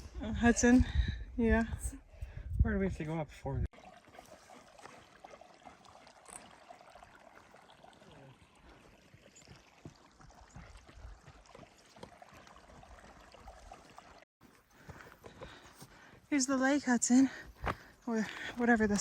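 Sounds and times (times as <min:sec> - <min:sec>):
faint running water: 0:03.7 - 0:14.3.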